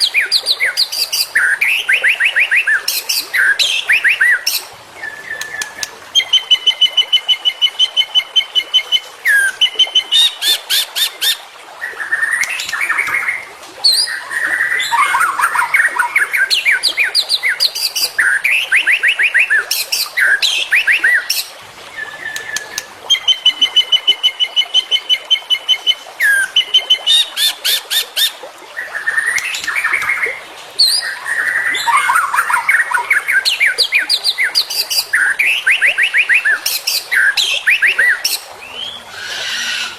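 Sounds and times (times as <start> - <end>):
songbird singing trills and whistles: 12.0 - 27.8.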